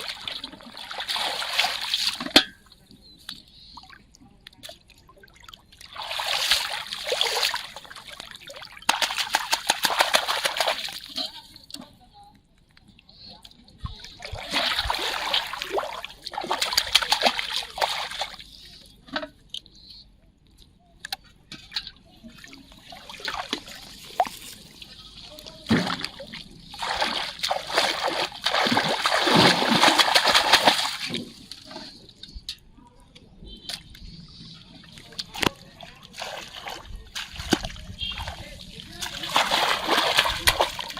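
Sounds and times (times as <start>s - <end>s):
water splashing: 0.0s - 2.5s, 4.6s - 11.8s, 13.8s - 18.5s, 22.2s - 32.2s, 33.6s - 40.9s.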